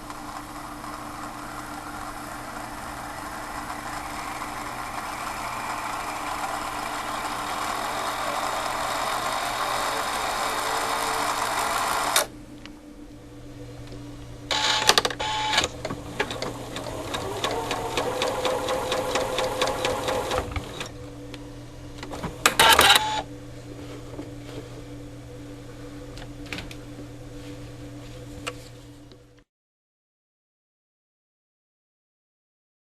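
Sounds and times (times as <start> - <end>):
sewing machine stitching: 0.0 - 12.3, 14.5 - 20.9
motor hum: 0.0 - 29.4.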